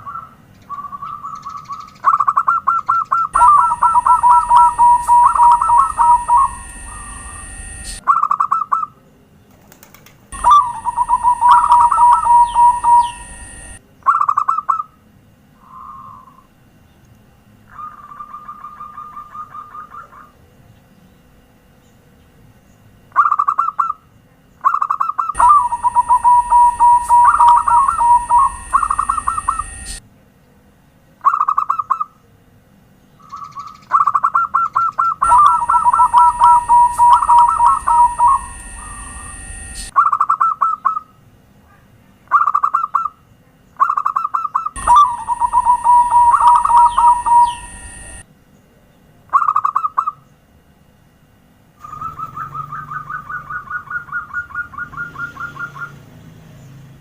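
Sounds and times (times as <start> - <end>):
dove cooing: 0.0 - 8.9, 9.6 - 14.9, 15.6 - 16.5, 17.7 - 20.4, 24.6 - 30.0, 33.3 - 41.1, 43.8 - 48.2, 51.8 - 56.0
steady high tone: 3.3 - 8.1, 10.4 - 13.8, 25.4 - 30.0, 35.2 - 40.0, 44.8 - 48.3.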